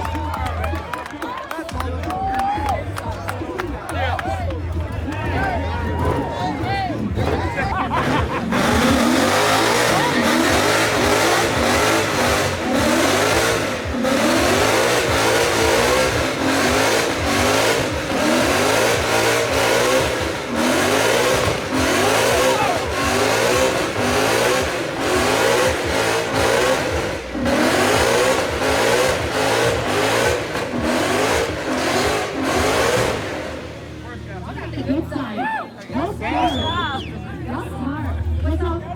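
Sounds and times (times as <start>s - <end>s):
car engine revving hard: 6.0s - 34.9s.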